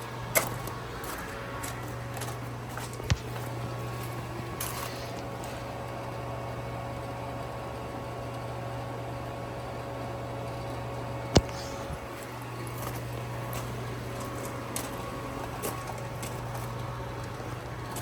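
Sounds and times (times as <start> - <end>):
sharp click: 11.4 - 12.0.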